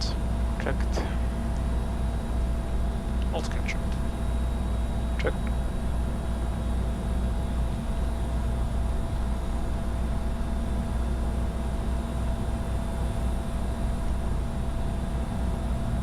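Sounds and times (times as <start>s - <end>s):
airflow and air conditioning rush: 0.0s - 9.3s
faint steady tones: 0.0s - 16.0s
low hum: 0.0s - 16.0s.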